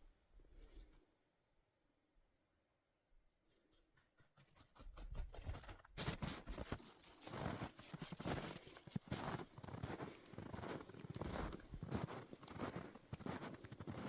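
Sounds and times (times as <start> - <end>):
footsteps crunching in snow: 6.0 - 14.0.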